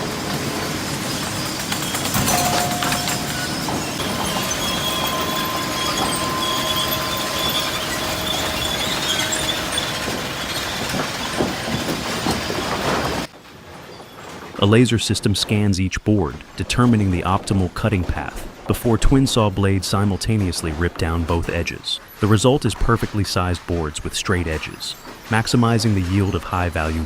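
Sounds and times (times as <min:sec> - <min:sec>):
faint machine whines: 0:00.0 - 0:13.3
machinery clattering: 0:00.0 - 0:13.3, 0:16.6 - 0:27.0
scattered knocks: 0:01.2 - 0:13.3.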